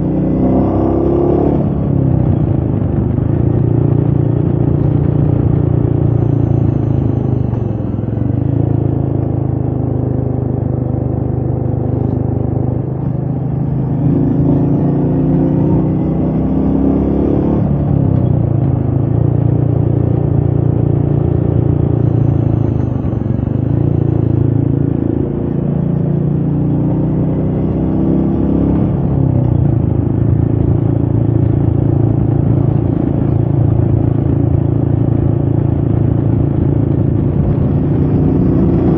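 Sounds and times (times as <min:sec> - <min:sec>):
motorcycle engine on the road: 0:00.0 - 0:38.9
wind noise: 0:28.4 - 0:38.9.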